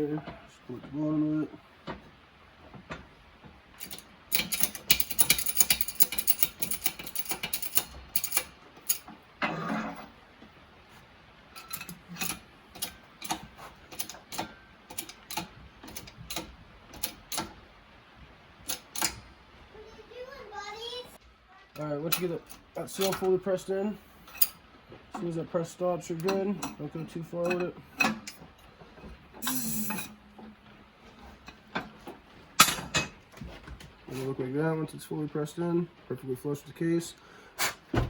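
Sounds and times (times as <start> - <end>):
shop press clicking: 3.8 - 9.1, 11.6 - 17.6, 18.6 - 19.2.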